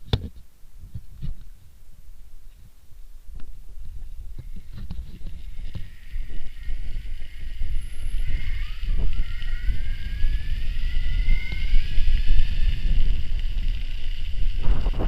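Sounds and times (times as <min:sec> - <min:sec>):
wind buffeting microphone: 0:00.0 - 0:15.0
electric motor whining: 0:03.8 - 0:15.0.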